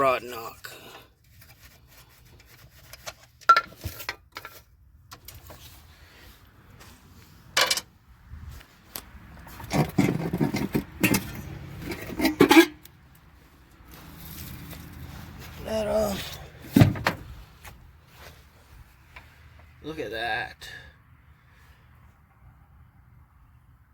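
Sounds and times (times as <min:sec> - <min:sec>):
metal tools clanking on engine: 0:07.6 - 0:07.9, 0:09.5 - 0:12.9.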